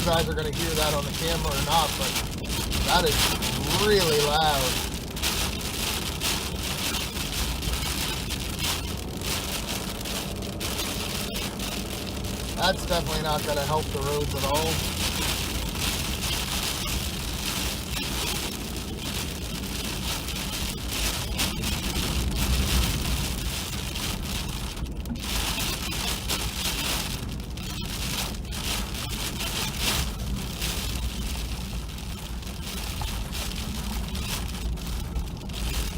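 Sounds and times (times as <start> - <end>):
freezing rain crackling: 0.0 - 35.9
truck low rumble: 0.0 - 35.9
ice pellets pelting truck: 12.5 - 15.3.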